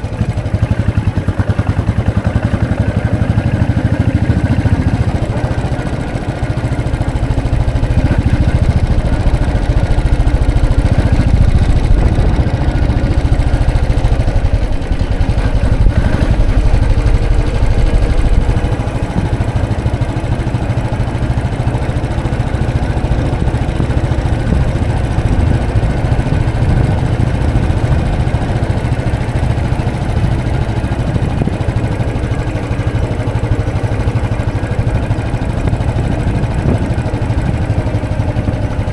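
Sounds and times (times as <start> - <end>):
motorcycle engine thumping: 0.0 - 38.9.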